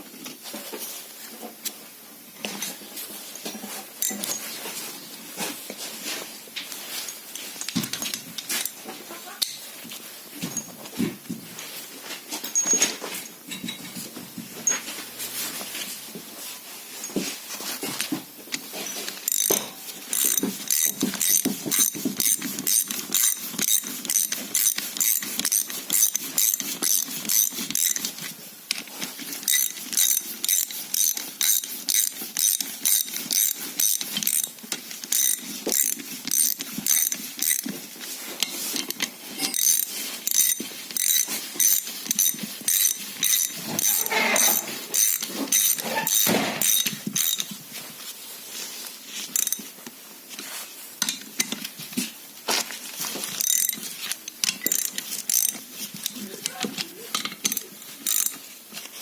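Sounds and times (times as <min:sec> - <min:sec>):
ratchet clicking: 0:18.6 - 0:37.7, 0:38.4 - 0:47.5, 0:49.4 - 0:49.7, 0:53.2 - 0:56.2, 0:57.1 - 0:58.4.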